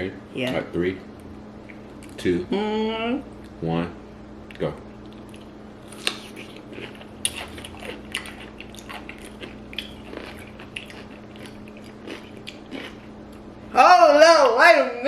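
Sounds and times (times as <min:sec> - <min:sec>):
crunching pickle bites: 0:05.0 - 0:13.4
crunchy chewing: 0:05.0 - 0:13.5.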